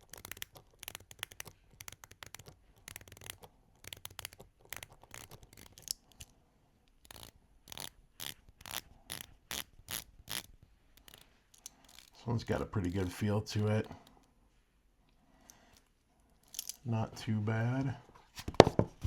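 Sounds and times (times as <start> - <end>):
watch bezel ratcheting clicks: 0.0 - 6.3, 7.0 - 12.2.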